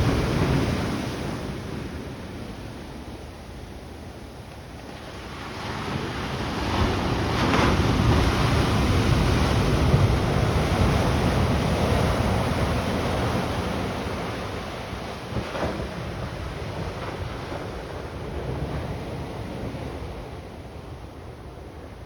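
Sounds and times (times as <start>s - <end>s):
ocean surf breaking: 0.0s - 3.7s
wind rumble on microphone: 0.0s - 22.0s.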